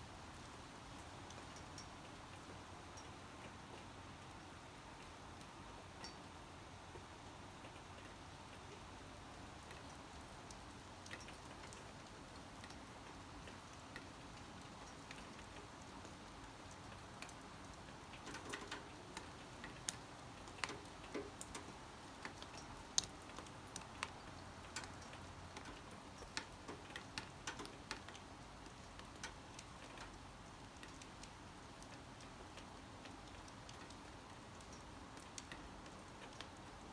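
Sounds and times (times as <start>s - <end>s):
raindrops tapping: 17.2s - 28.2s.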